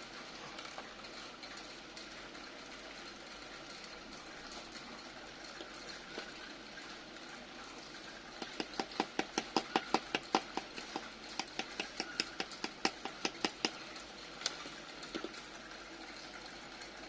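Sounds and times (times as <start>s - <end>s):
rapid sharp clicks: 8.4s - 14.6s.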